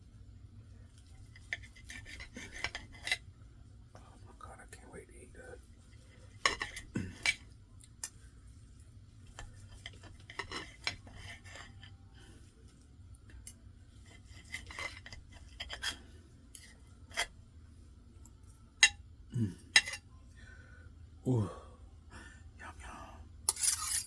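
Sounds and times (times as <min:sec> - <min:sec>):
cutlery clinking and scraping on plate: 0:01.2 - 0:03.2, 0:06.3 - 0:08.2, 0:09.3 - 0:11.9, 0:14.0 - 0:17.3, 0:19.7 - 0:20.1, 0:23.5 - 0:24.0.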